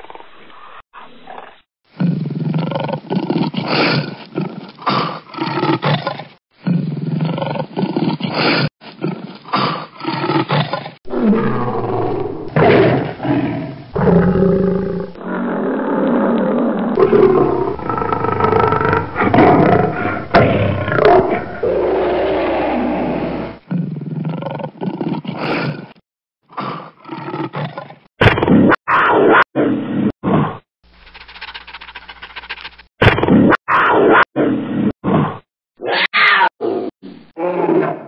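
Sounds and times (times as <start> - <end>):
big cats roaring: 9.6 - 25.2.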